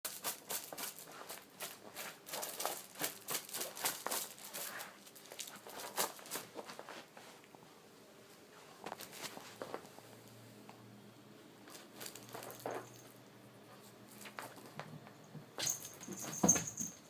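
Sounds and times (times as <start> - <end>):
cat scratching toy: 0.1 - 7.0.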